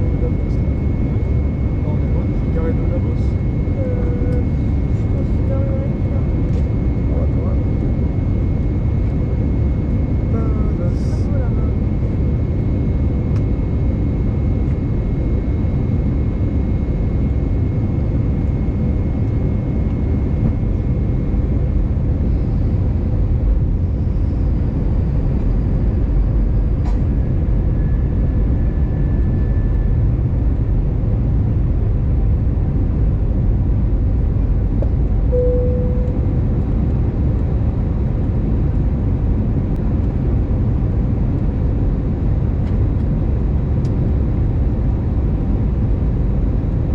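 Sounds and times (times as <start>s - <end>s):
airplane cabin engine rumble: 0.0s - 46.9s
short tone: 35.3s - 36.5s.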